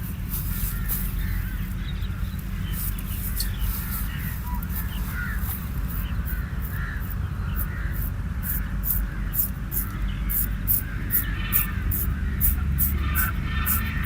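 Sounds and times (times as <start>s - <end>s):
razor scraping skin and hair: 2.7s - 14.0s.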